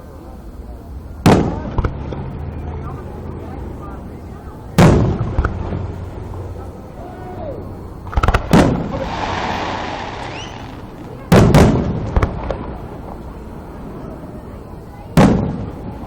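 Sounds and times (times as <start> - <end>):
fireworks crackling hiss: 7.8 - 11.8
fireworks booming: 8.1 - 12.9.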